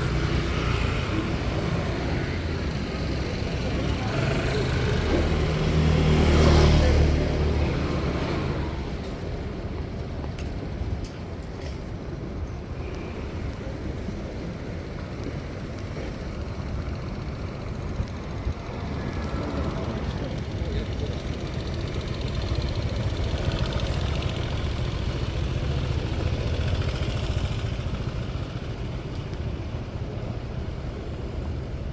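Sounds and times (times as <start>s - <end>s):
vehicle passing by: 0.0s - 9.0s
street traffic noise: 0.0s - 31.9s.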